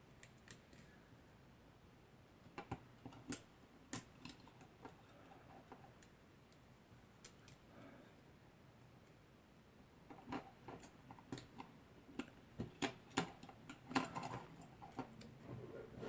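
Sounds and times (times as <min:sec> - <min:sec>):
small clicks from handling cables: 0:00.2 - 0:00.9, 0:02.5 - 0:07.6, 0:10.1 - 0:15.3.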